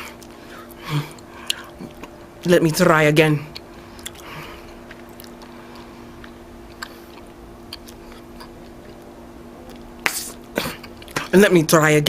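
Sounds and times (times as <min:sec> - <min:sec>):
faint steady hum: 0:00.0 - 0:12.0
gum chewing wet clicks: 0:01.1 - 0:02.2, 0:03.5 - 0:05.5, 0:06.2 - 0:09.1.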